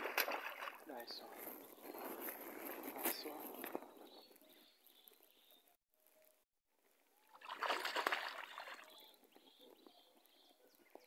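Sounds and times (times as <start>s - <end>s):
fish splashing at water surface: 7.3s - 8.8s.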